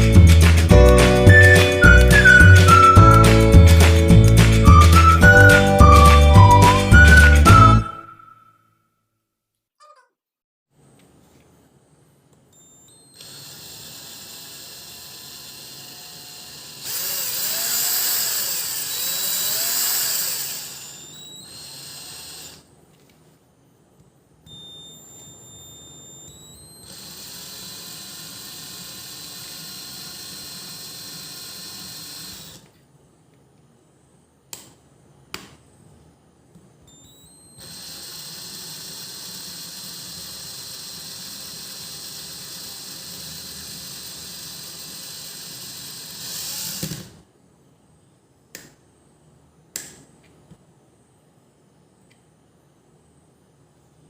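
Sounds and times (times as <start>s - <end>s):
cordless drill running: 13.0s - 22.7s, 24.5s - 32.7s, 37.0s - 47.2s.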